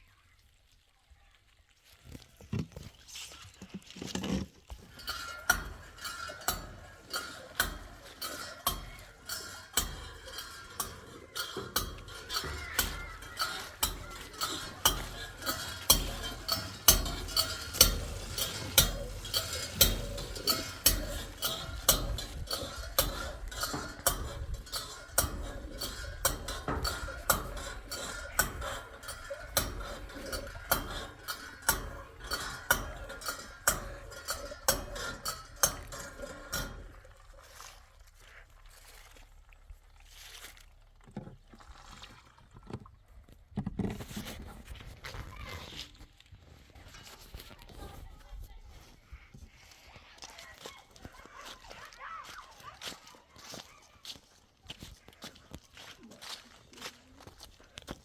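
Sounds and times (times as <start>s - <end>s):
utensil knocking and scraping pot: 2.5s - 37.8s.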